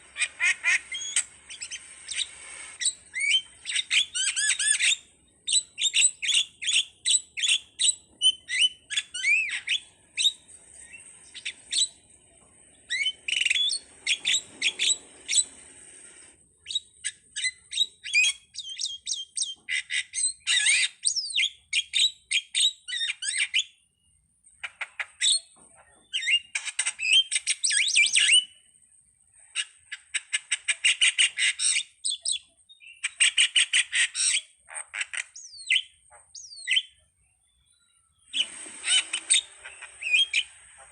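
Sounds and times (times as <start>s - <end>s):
starling singing: 0.0s - 15.6s, 38.3s - 40.9s.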